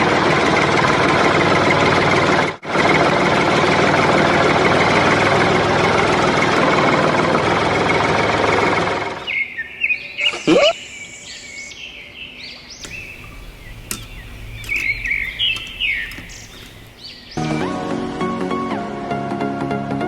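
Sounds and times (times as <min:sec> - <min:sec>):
loud engine-like running noise: 0:00.0 - 0:09.2, 0:12.8 - 0:17.1
birds chirping: 0:12.8 - 0:17.4.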